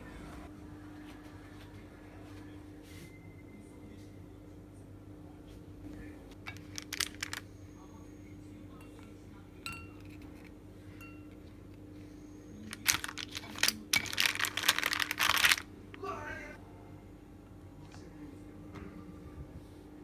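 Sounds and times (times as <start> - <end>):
glassware and dishes clinking: 8.8 - 11.6.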